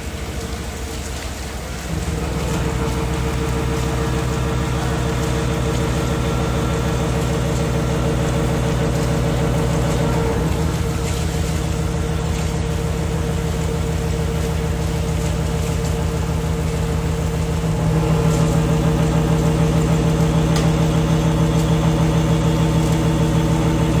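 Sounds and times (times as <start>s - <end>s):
foam moulding machine humming: 0.0s - 24.0s.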